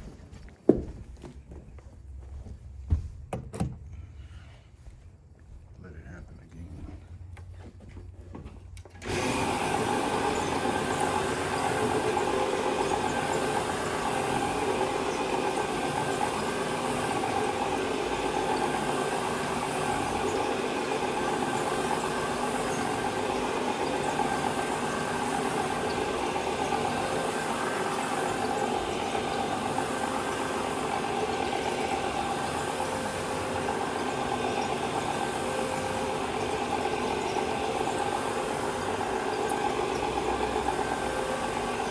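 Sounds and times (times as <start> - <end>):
carpet cleaning machine running: 8.9 - 41.9.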